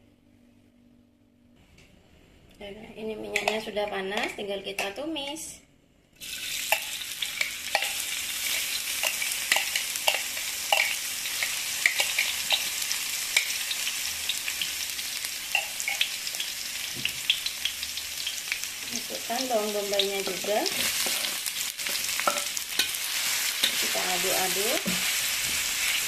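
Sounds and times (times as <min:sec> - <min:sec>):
paste sizzling in hot oil: 0:06.2 - 0:26.0.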